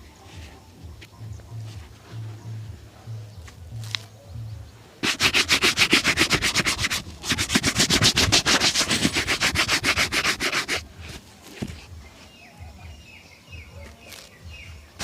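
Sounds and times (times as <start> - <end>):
shoe buffing strokes: 5.0 - 11.9.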